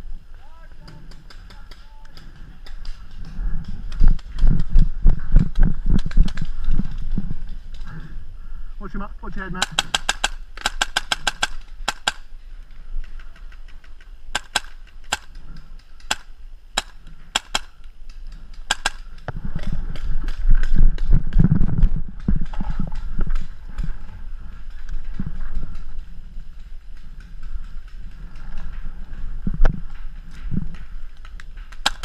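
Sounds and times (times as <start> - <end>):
paintball marker shots popping: 9.6 - 12.3, 14.3 - 19.3, 31.7 - 32.0.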